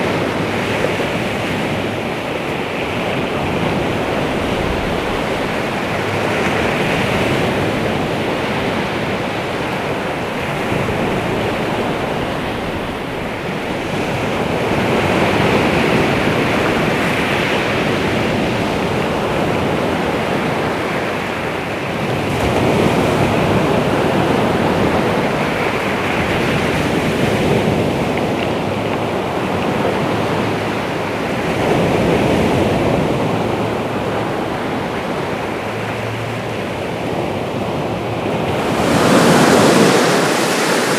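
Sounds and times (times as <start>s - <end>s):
sea waves washing onto shore: 37.0s - 40.9s.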